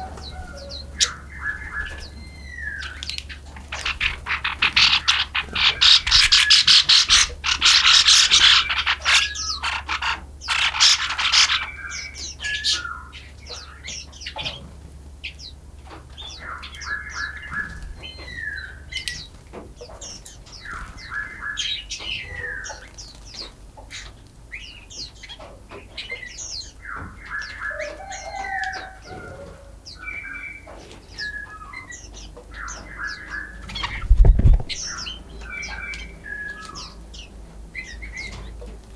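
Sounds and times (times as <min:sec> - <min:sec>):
rapid chattering bird trill: 0:00.0 - 0:12.9, 0:32.1 - 0:38.4
songbirds chirping: 0:00.0 - 0:38.9.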